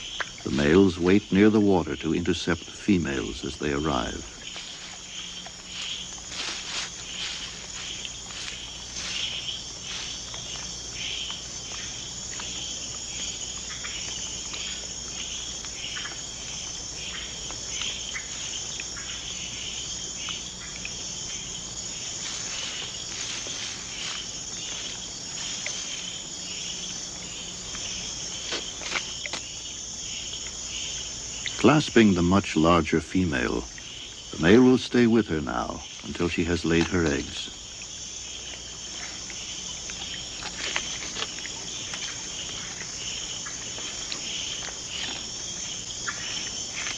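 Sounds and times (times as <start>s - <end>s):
high-pitched insect trilling: 0.0s - 46.9s.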